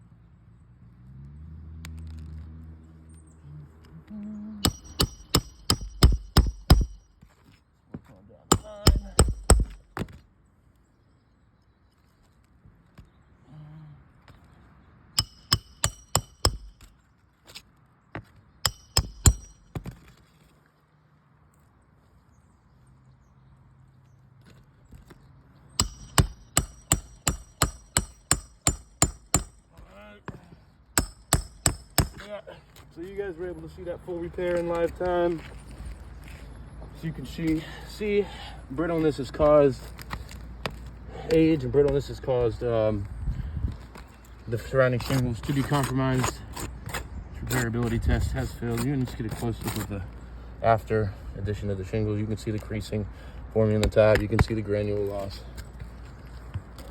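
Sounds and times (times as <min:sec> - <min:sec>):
hammer driving nails: 0:04.6 - 0:07.0, 0:08.5 - 0:10.2, 0:15.2 - 0:16.9, 0:18.6 - 0:20.0, 0:25.8 - 0:29.7, 0:31.0 - 0:32.3.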